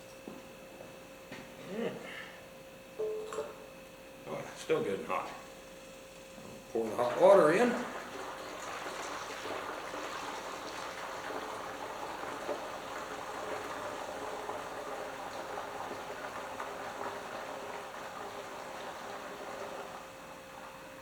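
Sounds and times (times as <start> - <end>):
water pouring into metal tank: 6.7 - 21.0.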